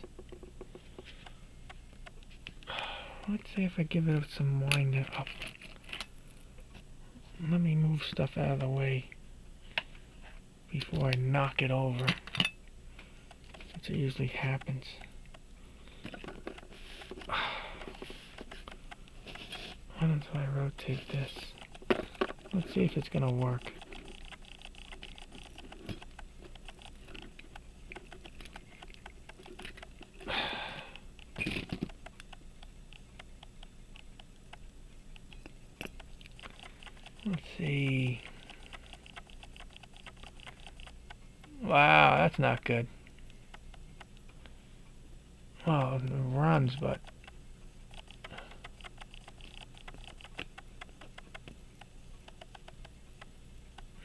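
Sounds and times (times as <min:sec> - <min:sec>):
pocket watch ticking: 0:07.4 - 0:09.0, 0:13.2 - 0:44.5, 0:45.6 - 0:54.0.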